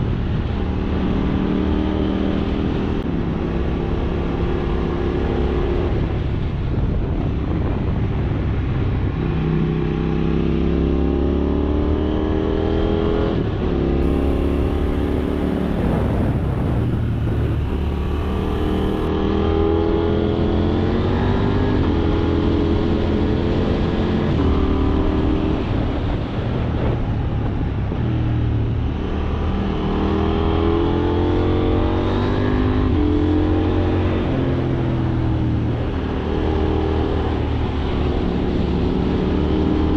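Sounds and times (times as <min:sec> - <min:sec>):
motorcycle engine accelerating: 0:14.0 - 0:25.4.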